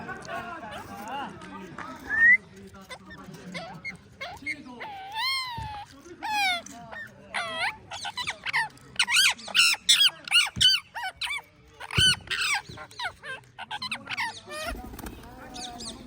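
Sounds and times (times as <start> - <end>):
parrots chirping and squawking: 2.8 - 16.0.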